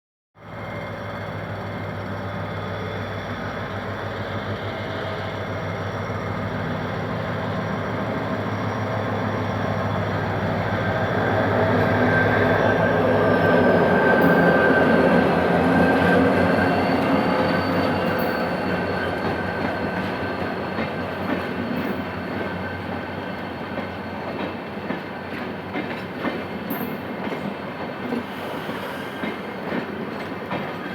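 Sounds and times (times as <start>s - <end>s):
locomotive engine humming: 0.6s - 27.9s
train wheels clicking on rail joints: 10.0s - 30.9s.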